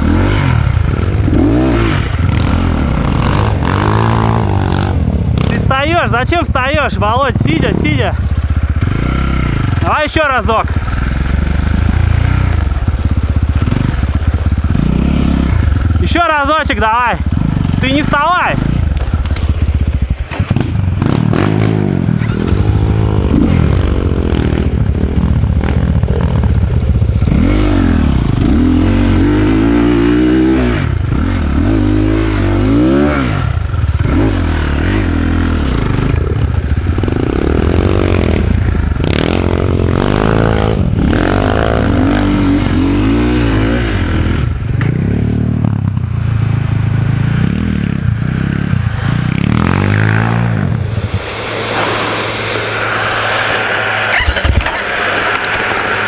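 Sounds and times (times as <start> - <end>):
dirt bike engine revving: 0.0 - 56.0
clatter: 10.6 - 16.2, 18.6 - 43.7, 53.0 - 56.0.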